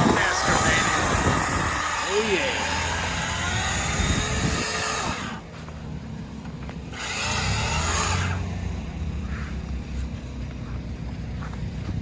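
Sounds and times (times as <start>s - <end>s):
chainsaw cutting tree trunk: 0.0s - 5.5s, 6.5s - 9.2s
chainsaw engine idling: 0.0s - 10.0s.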